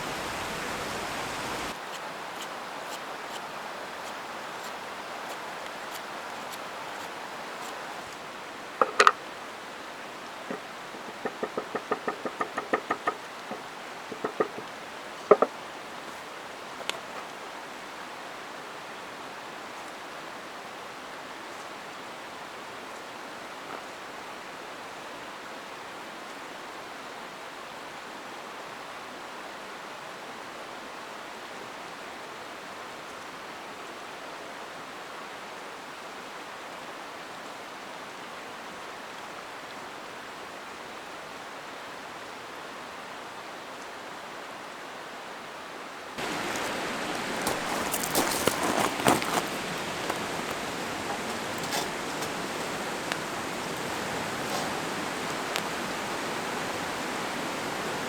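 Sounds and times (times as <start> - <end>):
mountain stream flowing: 0.0 - 58.0
sharp knocks: 10.5 - 14.7.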